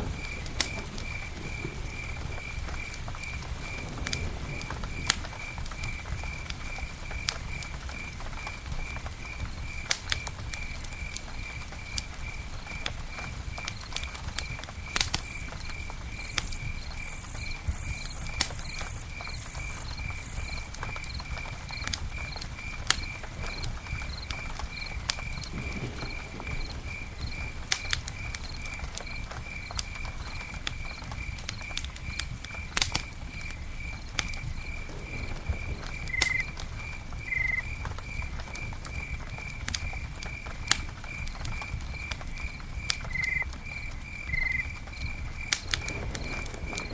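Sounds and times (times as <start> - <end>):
campfire crackling and popping: 0.0 - 46.9
insect chirping: 13.6 - 32.2, 33.3 - 40.4, 41.8 - 46.9.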